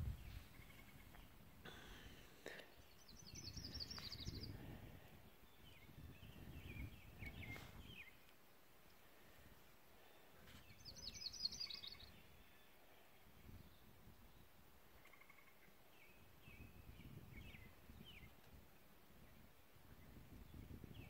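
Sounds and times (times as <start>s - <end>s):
wind rumble on microphone: 0.0s - 1.7s, 3.0s - 8.1s, 13.2s - 14.5s, 16.1s - 21.0s.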